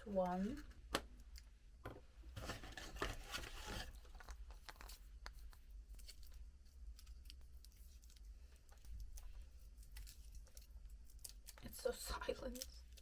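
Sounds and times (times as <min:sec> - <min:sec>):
wrapper crinkling and clicks: 0:02.7 - 0:13.0.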